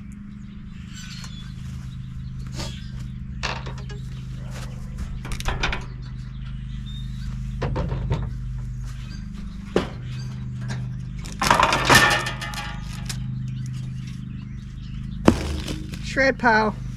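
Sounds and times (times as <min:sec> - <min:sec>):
metal knocks and clatters: 0:15.3 - 0:16.2
steady low hum: 0:15.3 - 0:16.9.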